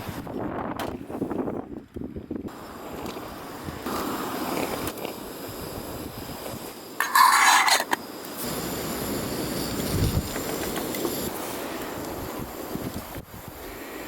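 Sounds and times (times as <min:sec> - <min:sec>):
wind buffeting microphone: 0:00.0 - 0:03.9, 0:09.4 - 0:13.9
metal cookware scraping: 0:07.0 - 0:08.0.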